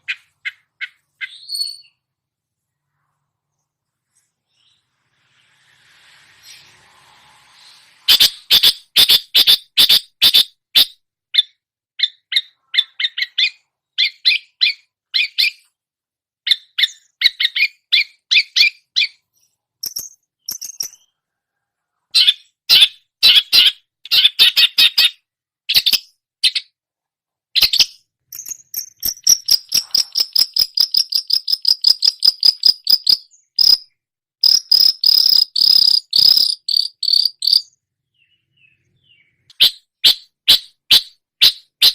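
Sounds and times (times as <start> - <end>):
bird singing high chips and trills: 0.0 - 2.0, 16.5 - 21.2, 27.6 - 41.9.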